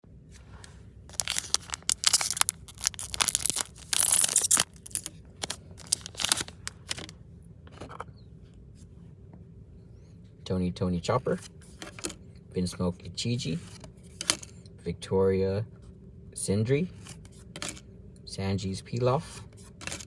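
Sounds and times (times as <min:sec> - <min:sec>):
wrapper tearing and crinkling: 0:01.1 - 0:07.1.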